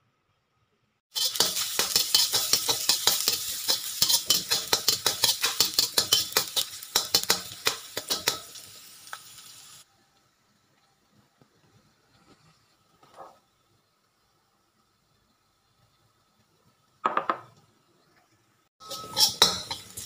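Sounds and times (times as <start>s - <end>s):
metal spatula scraping wok: 1.1s - 8.8s, 18.8s - 20.0s
food sizzling in hot oil: 1.1s - 9.9s, 18.8s - 20.0s.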